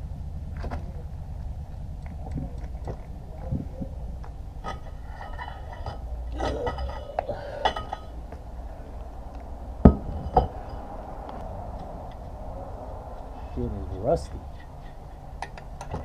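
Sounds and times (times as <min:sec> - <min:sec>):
hand tools clinking on metal: 0:04.6 - 0:08.2
sharp metal knocks: 0:09.8 - 0:10.9, 0:15.4 - 0:16.0.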